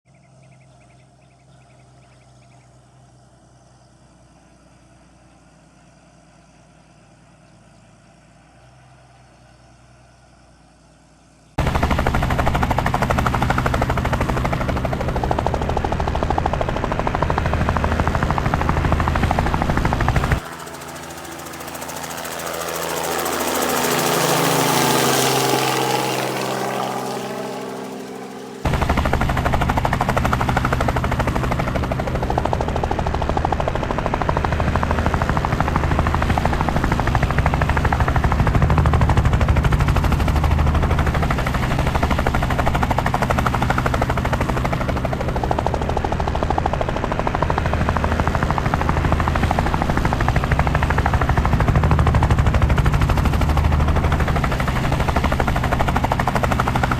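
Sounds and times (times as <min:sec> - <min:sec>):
close helicopter rotor chop: 0:11.5 - 0:56.9
helicopter passing by: 0:11.5 - 0:56.9.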